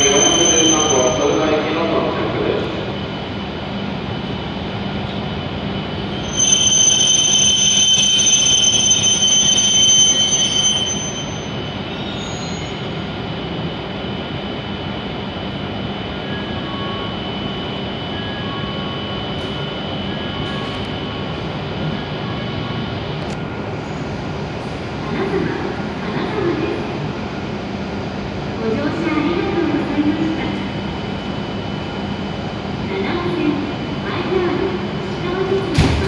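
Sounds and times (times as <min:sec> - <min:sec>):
high-pitched brake squeal: 0:00.0 - 0:01.7, 0:06.1 - 0:13.2, 0:16.2 - 0:21.2
train rolling hum: 0:00.0 - 0:36.0.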